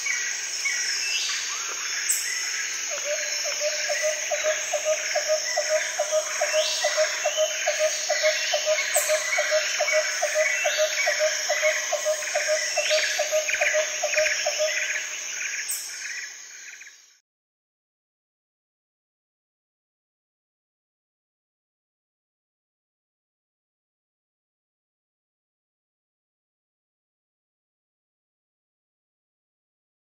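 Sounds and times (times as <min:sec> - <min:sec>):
insects trilling and chirping: 0:00.0 - 0:17.2.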